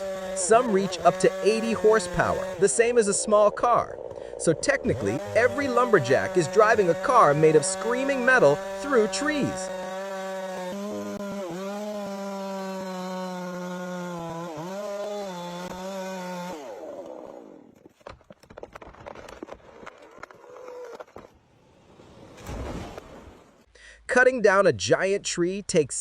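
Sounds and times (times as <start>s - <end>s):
chainsaw cutting wood: 0.0s - 21.4s
clicks and cracks: 17.7s - 21.4s.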